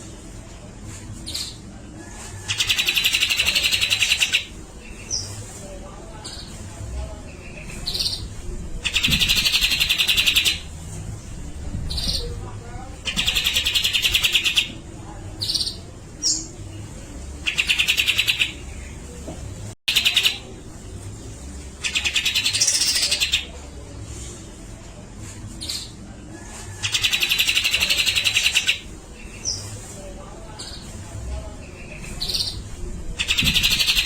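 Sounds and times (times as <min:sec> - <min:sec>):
bird rapid rattling song: 0:02.5 - 0:05.3, 0:08.8 - 0:10.7, 0:13.0 - 0:14.7, 0:17.4 - 0:18.8, 0:19.9 - 0:20.4, 0:21.8 - 0:23.5, 0:26.8 - 0:29.6, 0:33.2 - 0:34.0.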